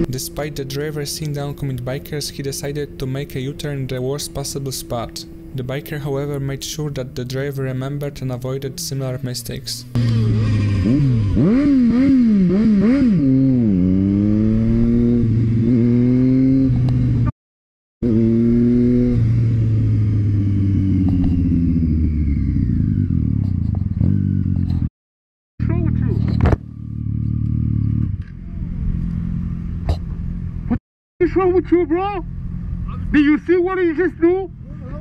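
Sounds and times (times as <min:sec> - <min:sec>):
motorcycle engine revving: 0:00.0 - 0:07.8, 0:09.8 - 0:17.3, 0:18.0 - 0:24.9, 0:25.6 - 0:30.8.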